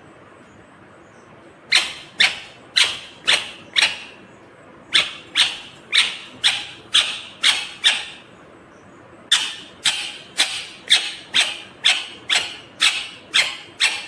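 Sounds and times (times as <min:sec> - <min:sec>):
parrot screeching: 0:01.7 - 0:04.1, 0:05.0 - 0:08.2, 0:09.3 - 0:14.0.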